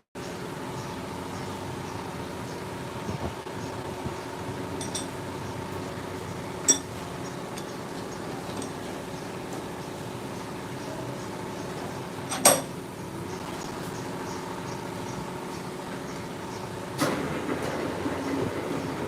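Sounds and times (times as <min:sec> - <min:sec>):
milling machine humming: 0:00.4 - 0:19.0
sharp metallic clinks: 0:04.8 - 0:05.2, 0:06.6 - 0:08.9.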